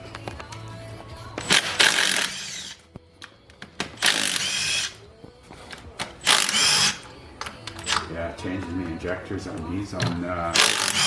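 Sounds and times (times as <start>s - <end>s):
power tool whining: 1.3s - 2.9s, 3.7s - 8.2s, 10.5s - 11.0s
sharp clicks: 1.4s - 5.0s, 6.0s - 8.1s, 10.6s - 11.0s.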